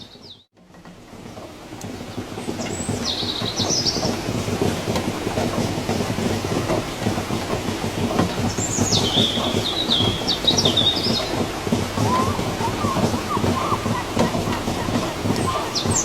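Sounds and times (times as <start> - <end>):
steady rain: 0.6 - 16.0
bird whistling and chirping: 8.8 - 11.3, 12.0 - 16.0.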